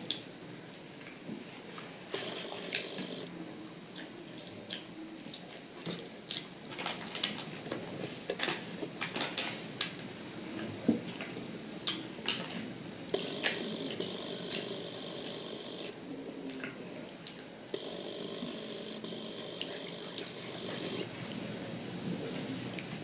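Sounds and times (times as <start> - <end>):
crunchy chewing: 1.0 - 3.3, 3.9 - 21.4.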